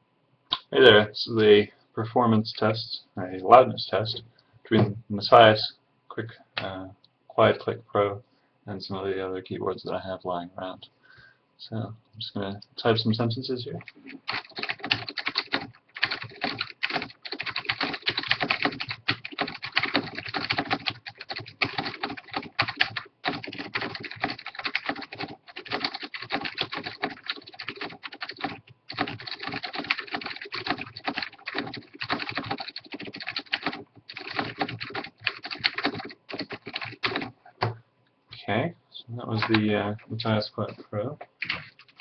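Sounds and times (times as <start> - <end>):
fast typing on keyboard: 13.8 - 37.4, 41.4 - 42.0.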